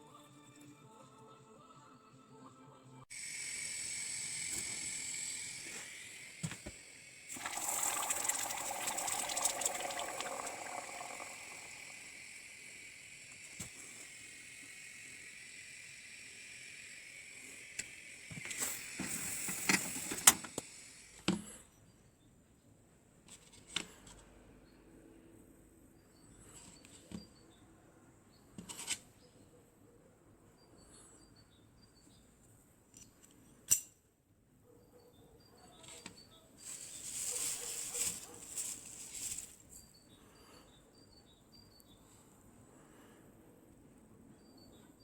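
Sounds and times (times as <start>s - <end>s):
steady hiss: 3.1s - 21.3s, 36.6s - 39.6s.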